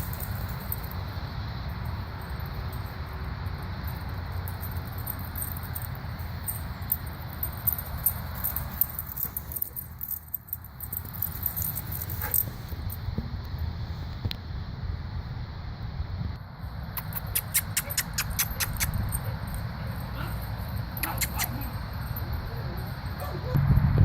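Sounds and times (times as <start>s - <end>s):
dogs scuffling: 4.0s - 12.9s
steady low rumble: 21.7s - 24.0s.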